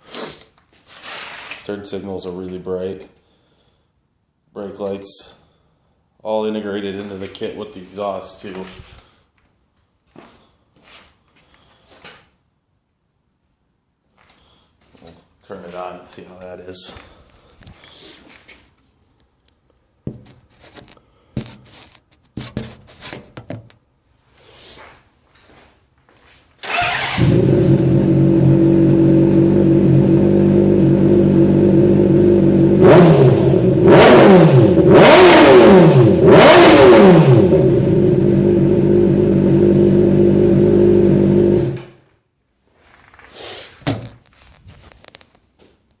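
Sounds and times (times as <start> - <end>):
engine revving: 26.6 - 41.9.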